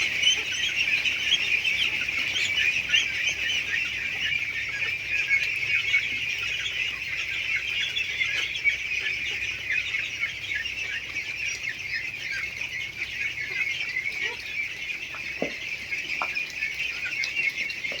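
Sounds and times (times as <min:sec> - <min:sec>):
ducklings peeping: 0:00.0 - 0:18.0.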